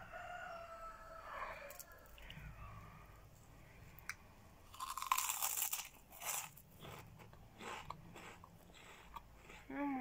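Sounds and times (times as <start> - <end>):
chewing crunches: 4.7 - 9.8
crunching puffed snack: 4.7 - 9.9.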